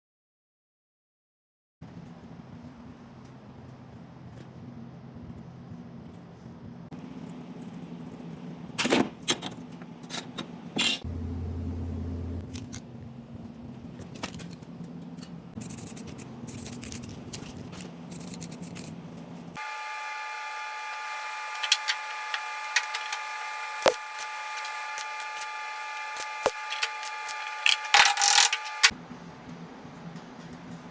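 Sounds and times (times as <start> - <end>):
steady hum: 1.8 - 30.9
power tool whining: 19.6 - 28.9.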